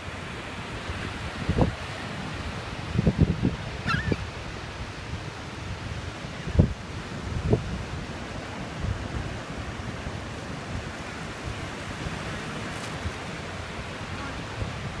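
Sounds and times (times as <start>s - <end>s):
ocean surf washing on beach: 0.0s - 15.0s
wind buffeting microphone: 0.9s - 15.0s.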